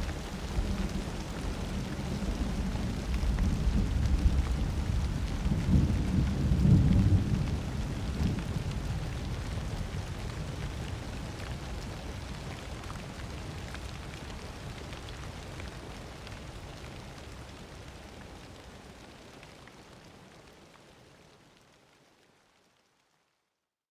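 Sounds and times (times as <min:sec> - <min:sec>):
low thunder rumble: 0:00.0 - 0:11.2
steady rain: 0:00.0 - 0:23.6.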